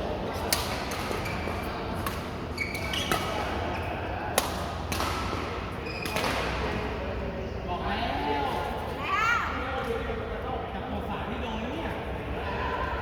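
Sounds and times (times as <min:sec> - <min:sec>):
racket hitting shuttlecock: 0:00.4 - 0:01.3, 0:01.9 - 0:03.6, 0:04.3 - 0:06.6
shoes squeaking on court: 0:00.9 - 0:03.5, 0:05.8 - 0:06.5.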